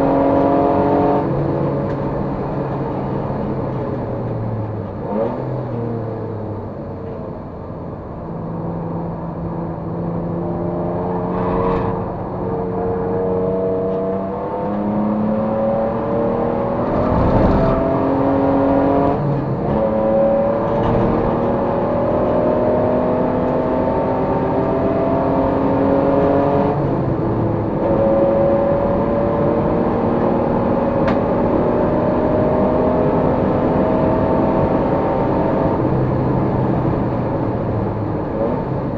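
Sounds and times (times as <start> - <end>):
race car engine revving: 11.0 - 36.0.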